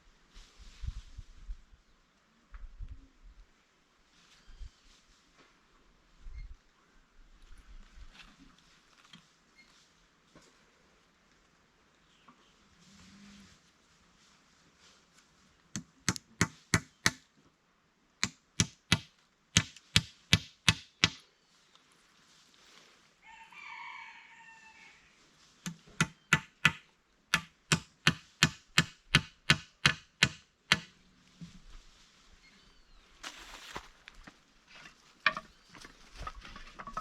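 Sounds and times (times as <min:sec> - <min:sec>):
tool blade chopping wood: 0:18.2 - 0:21.2, 0:25.7 - 0:30.9.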